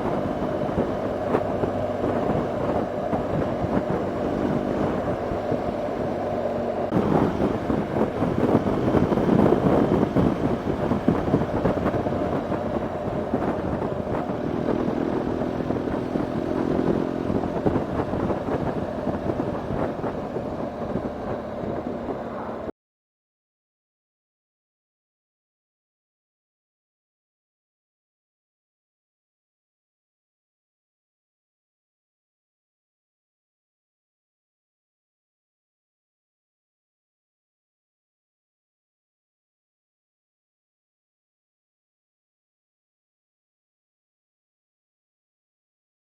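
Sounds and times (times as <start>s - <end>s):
motorcycle engine running: 0.0s - 22.7s
wind rushing over microphone: 0.0s - 22.7s.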